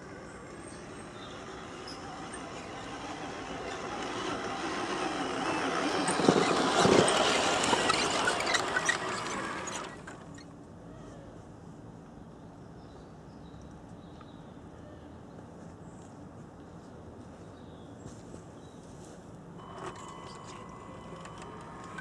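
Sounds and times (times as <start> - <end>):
model truck motor and gears: 0.0 - 10.6, 19.6 - 22.0
scattered clicks: 19.6 - 22.0.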